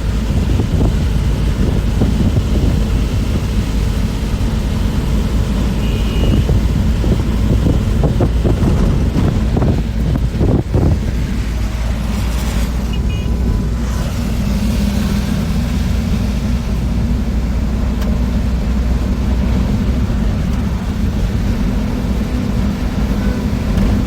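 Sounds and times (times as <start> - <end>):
bus engine and road rumble: 0.0 - 24.0.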